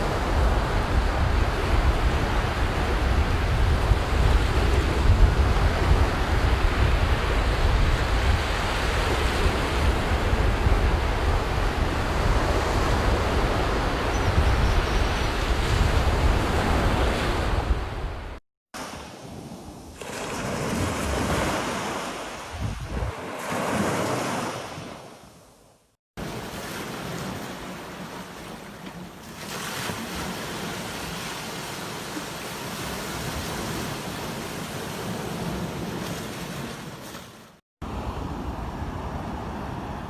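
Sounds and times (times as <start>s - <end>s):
ocean surf breaking on beach: 15.1s - 25.1s, 26.2s - 40.0s.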